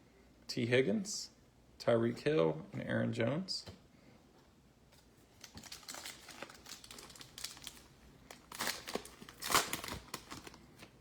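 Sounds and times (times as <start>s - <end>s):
foil wrapper crinkling: 5.2s - 11.0s.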